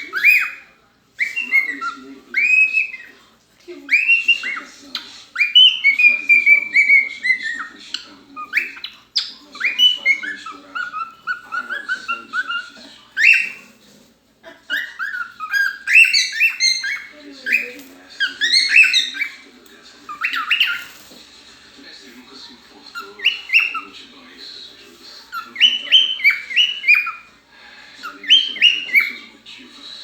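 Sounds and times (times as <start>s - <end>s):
pet bird whistling calls: 14.7s - 19.4s, 25.4s - 27.2s.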